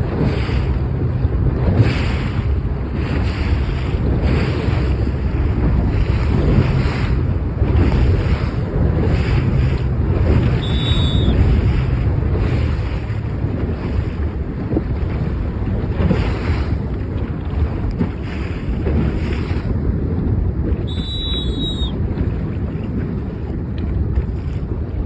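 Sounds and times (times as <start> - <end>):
gusty wind on microphone: 0.0 - 25.0
surf rushing: 0.0 - 25.0.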